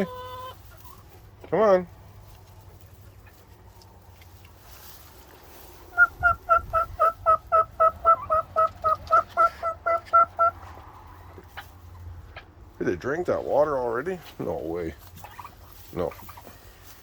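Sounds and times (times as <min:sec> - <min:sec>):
turkey calling: 0:00.0 - 0:01.0, 0:05.9 - 0:10.7, 0:15.1 - 0:16.8.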